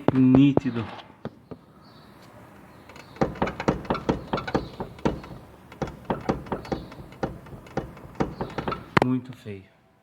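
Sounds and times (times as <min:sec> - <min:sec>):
wheel knocking with sharp clunks: 0:02.6 - 0:09.0.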